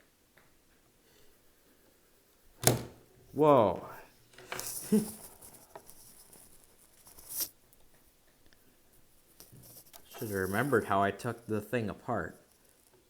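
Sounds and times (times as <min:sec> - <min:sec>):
brief rustling scrape: 0:04.4 - 0:07.6, 0:09.4 - 0:10.9.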